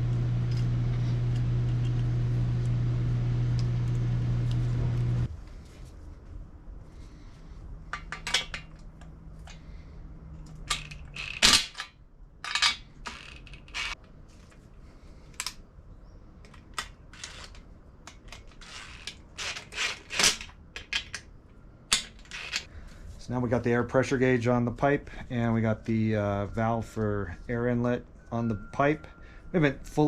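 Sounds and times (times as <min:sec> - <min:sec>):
low hum: 0:00.0 - 0:08.0, 0:22.8 - 0:30.0.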